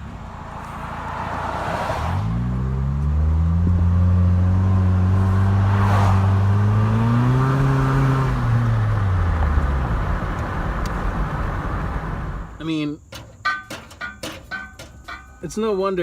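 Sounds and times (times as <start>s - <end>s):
raspy car engine revving: 0.4s - 12.6s.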